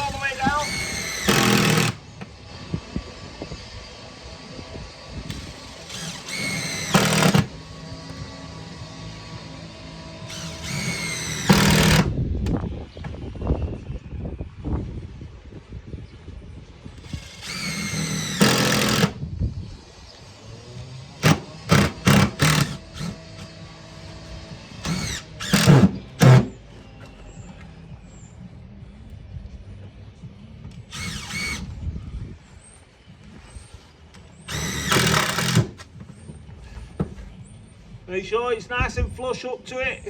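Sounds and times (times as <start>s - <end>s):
power drill driving screws: 0.0s - 2.1s, 5.3s - 8.2s, 10.2s - 12.1s, 17.0s - 19.2s, 21.2s - 23.6s, 24.8s - 26.6s, 30.9s - 31.7s, 34.4s - 35.9s.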